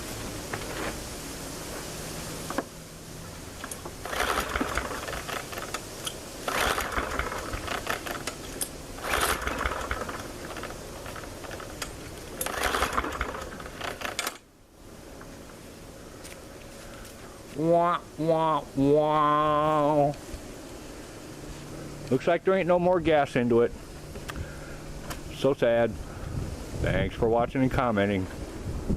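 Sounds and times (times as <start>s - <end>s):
lawn mower recoil starter cranking: 3.6s - 14.5s.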